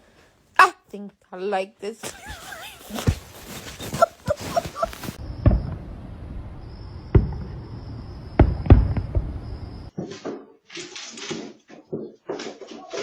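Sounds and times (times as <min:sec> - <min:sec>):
short pitched squeaks: 0:02.1 - 0:05.2.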